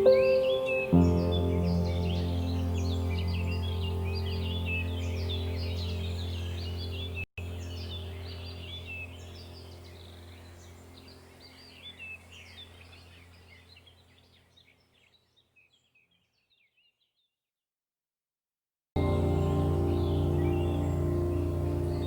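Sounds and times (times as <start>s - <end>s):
small birds chirping: 0.0s - 17.4s, 19.0s - 22.0s
steady low hum: 19.0s - 22.0s.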